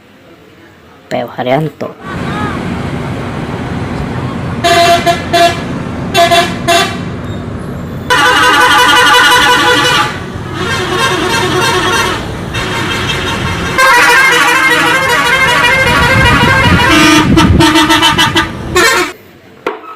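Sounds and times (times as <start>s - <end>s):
multi-tone bus horn: 4.5s - 7.2s, 8.0s - 19.2s.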